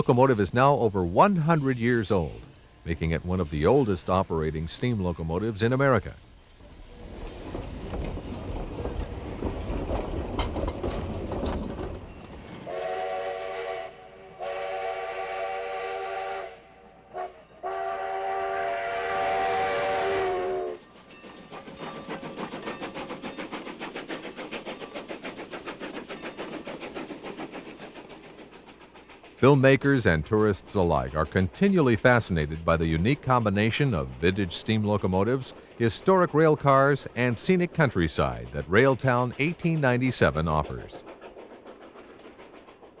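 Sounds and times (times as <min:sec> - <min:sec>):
chime whistle: 0:00.0 - 0:11.1
steam locomotive rumbling: 0:00.0 - 0:43.0
wheels clicking over rail joints: 0:07.2 - 0:12.7, 0:20.8 - 0:43.0.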